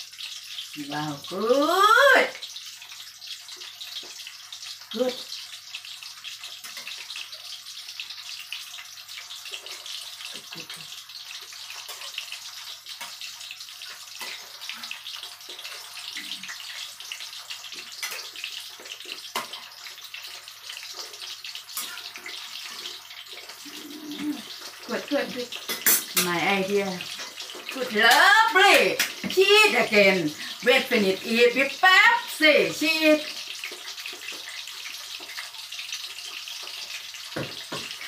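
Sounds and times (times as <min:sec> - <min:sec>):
patty sizzling in a frying pan: 0:00.0 - 0:38.0.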